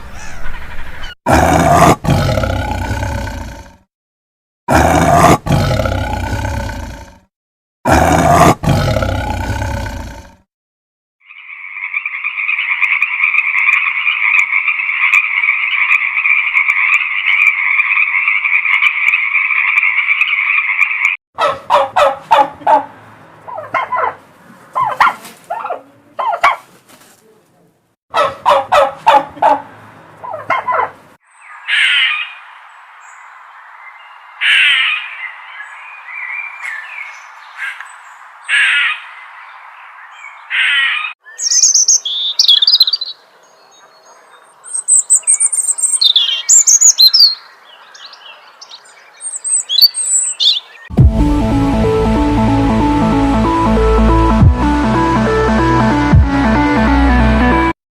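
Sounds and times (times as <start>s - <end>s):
poultry calling: 0.0s - 1.2s, 11.8s - 26.6s, 30.2s - 31.0s.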